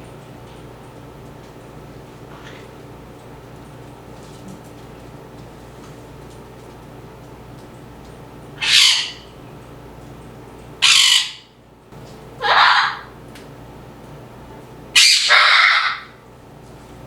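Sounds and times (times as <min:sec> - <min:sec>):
parrot squawking: 0:08.6 - 0:09.3, 0:10.8 - 0:11.5, 0:12.4 - 0:13.2, 0:15.0 - 0:16.2.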